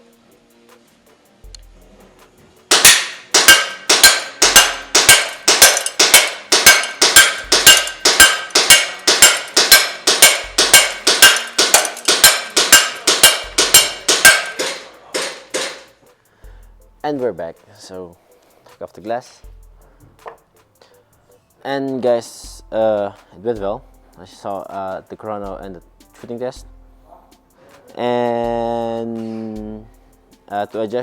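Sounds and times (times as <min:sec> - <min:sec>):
airsoft pistol shots: 0:02.7 - 0:15.9.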